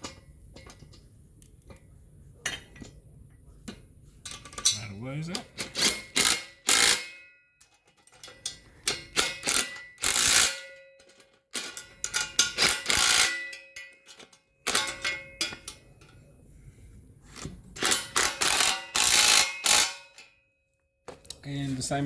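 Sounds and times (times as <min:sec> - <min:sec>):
tool rattling tightening bolts: 0:04.3 - 0:15.8, 0:17.8 - 0:20.3.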